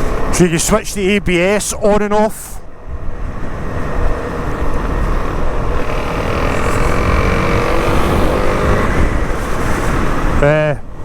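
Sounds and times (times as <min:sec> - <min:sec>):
motorcycle engine running: 0:03.8 - 0:09.9.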